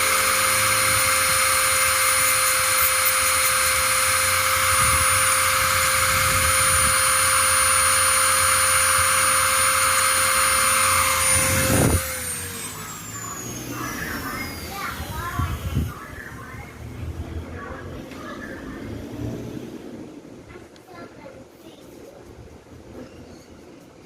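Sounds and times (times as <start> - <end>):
small electric motor whining: 0.0 - 16.0.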